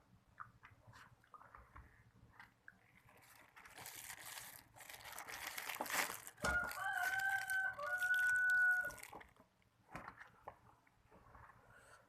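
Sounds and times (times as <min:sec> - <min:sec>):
rustling: 0:02.4 - 0:09.4
rooster crowing: 0:06.4 - 0:09.0.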